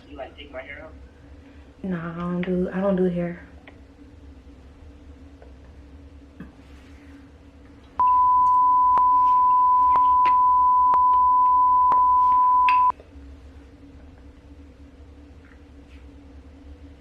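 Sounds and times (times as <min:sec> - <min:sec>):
high censor beep tone: 0:08.0 - 0:12.9.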